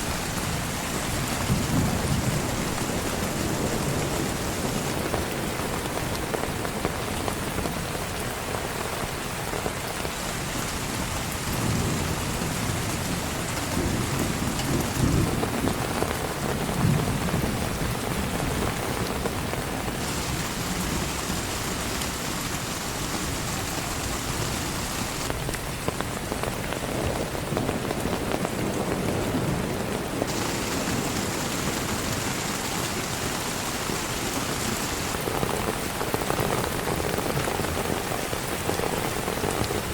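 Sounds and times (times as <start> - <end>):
heavy rain falling: 0.0 - 39.9
low thunder rumble: 0.1 - 7.8, 11.4 - 22.0.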